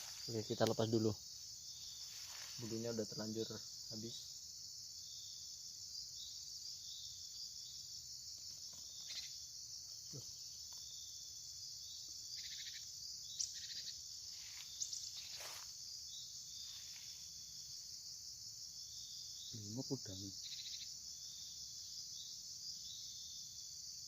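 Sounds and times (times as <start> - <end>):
high-pitched insect chorus: 0.0 - 24.0
insect chirps and trills: 0.0 - 24.0.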